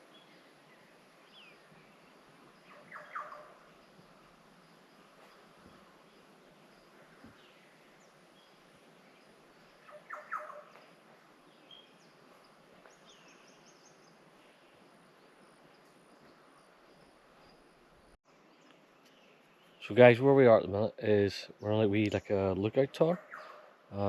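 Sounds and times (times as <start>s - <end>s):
faint bird chirps: 0.0s - 20.5s, 21.4s - 24.0s
harsh bird calls: 2.6s - 4.0s, 5.1s - 15.4s, 21.2s - 24.0s
high bird trill: 2.6s - 4.0s, 9.7s - 14.8s.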